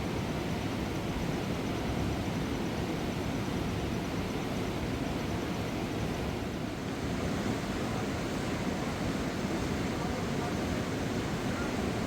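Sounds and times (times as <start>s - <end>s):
fast-flowing river rushing: 6.9s - 12.0s.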